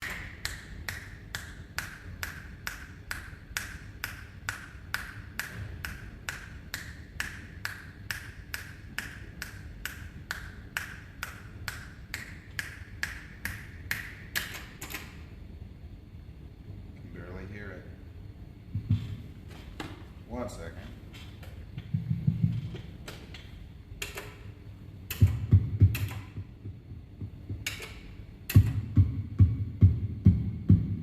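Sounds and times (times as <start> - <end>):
metronome clicks: 25.1 - 26.4, 27.6 - 28.8.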